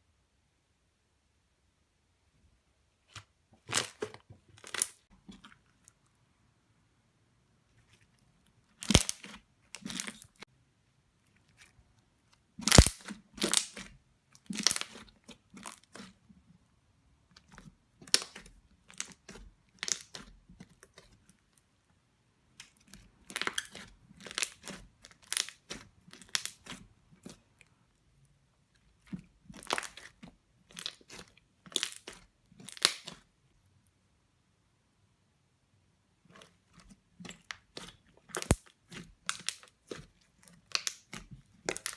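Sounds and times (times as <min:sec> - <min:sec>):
slime bubbles popping: 0:12.6 - 0:13.8.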